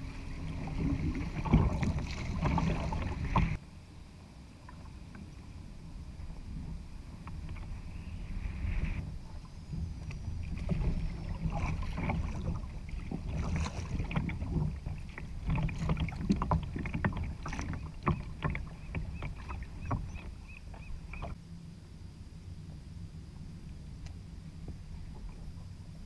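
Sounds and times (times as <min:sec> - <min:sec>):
water and wind rumble: 0:00.0 - 0:26.0.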